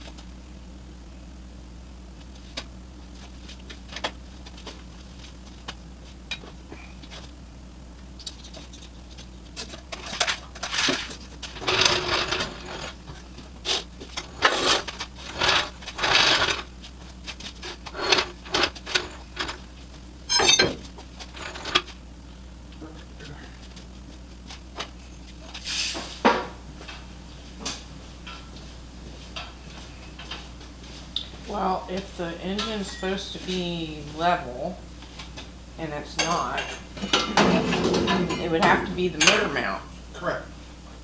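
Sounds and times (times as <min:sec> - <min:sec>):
low hum: 0:00.0 - 0:41.0
scraping and rubbing: 0:08.3 - 0:19.7.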